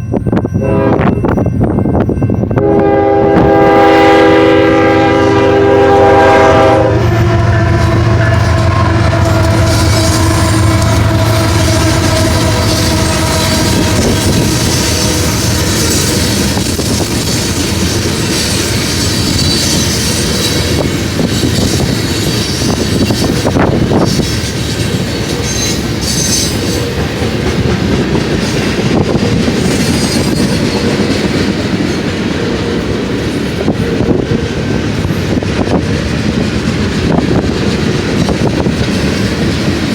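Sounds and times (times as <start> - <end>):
high wheel squeal: 7.0 - 27.0, 29.6 - 31.0
wheels clattering over rails: 7.8 - 39.9.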